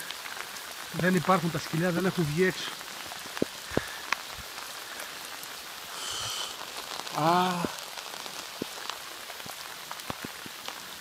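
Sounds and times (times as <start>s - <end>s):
pouring rain: 0.0s - 11.0s
short voiced call: 6.0s - 7.8s.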